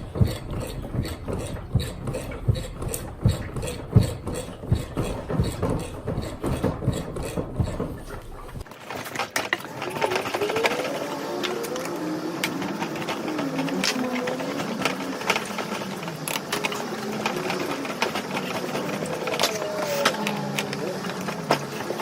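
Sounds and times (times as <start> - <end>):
busy clatter with shifting tones: 0.0 - 22.0
metal knocks from hand tools: 0.2 - 8.7.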